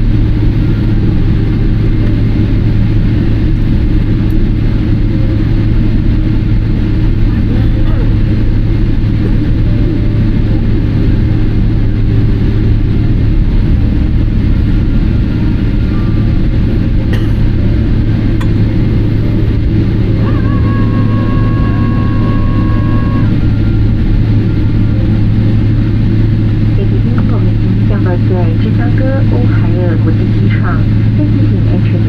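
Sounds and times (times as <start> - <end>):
airliner engine rumble in cabin: 0.0 - 32.0
high two-note tone: 15.8 - 25.9.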